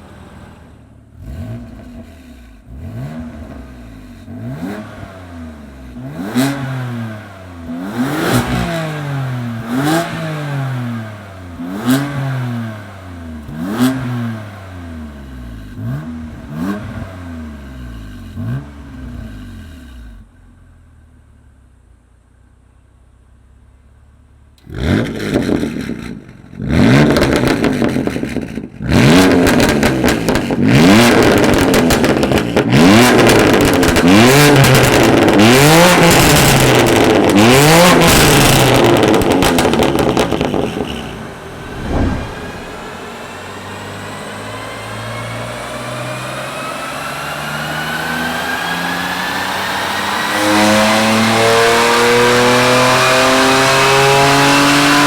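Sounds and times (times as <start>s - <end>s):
car engine revving: 1.1s - 20.0s, 24.6s - 55.0s
exhaust pops and crackles: 27.1s - 35.4s.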